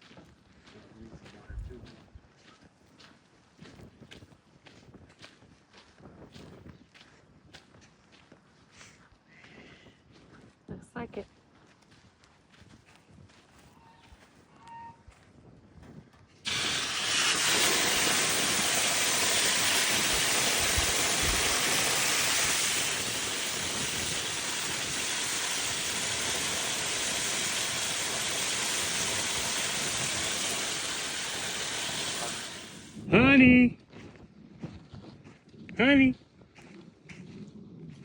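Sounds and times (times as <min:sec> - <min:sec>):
steady loud hiss: 0:16.5 - 0:33.4.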